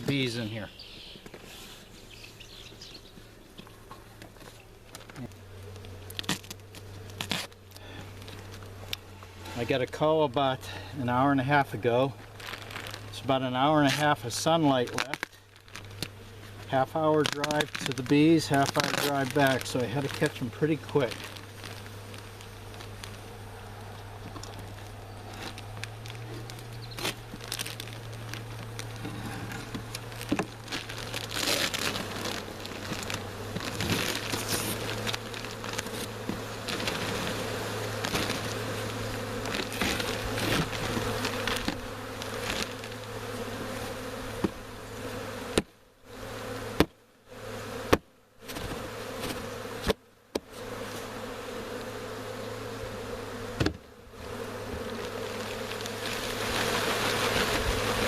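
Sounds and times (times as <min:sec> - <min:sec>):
bee swarm buzzing: 0:00.0 - 0:58.0
bag crinkling and rustling: 0:12.2 - 0:16.2, 0:16.8 - 0:43.1.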